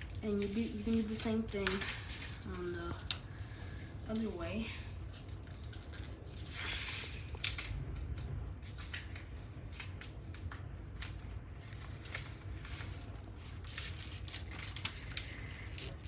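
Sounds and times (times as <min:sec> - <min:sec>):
paper being folded and creased: 0:00.0 - 0:04.4, 0:05.1 - 0:16.0
steady low hum: 0:00.0 - 0:16.0.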